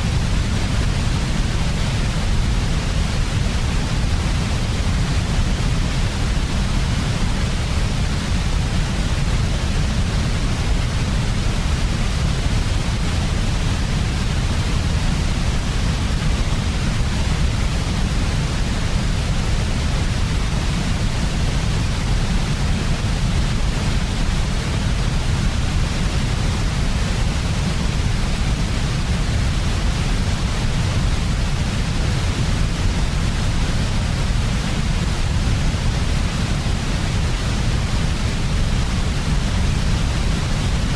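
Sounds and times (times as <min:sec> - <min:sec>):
white noise with low rumble: 0:00.0 - 0:40.9.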